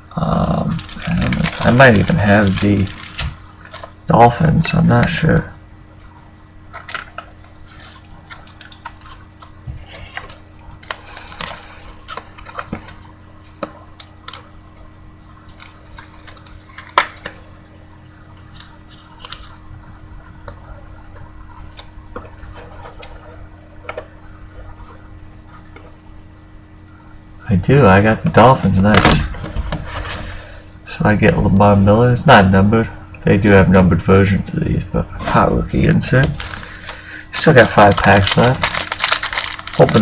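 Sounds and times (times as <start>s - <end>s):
faint steady hum: 0.0s - 40.0s
soft handling rustling: 0.6s - 4.0s, 36.0s - 40.0s.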